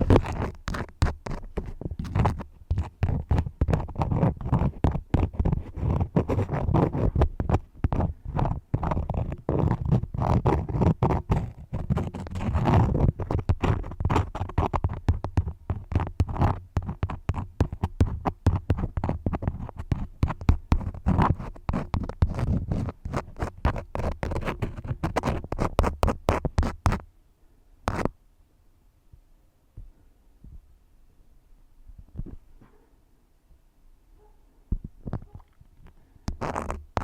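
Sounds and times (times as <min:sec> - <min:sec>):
crayons scratching on paper: 0:00.0 - 0:27.0, 0:36.3 - 0:37.0.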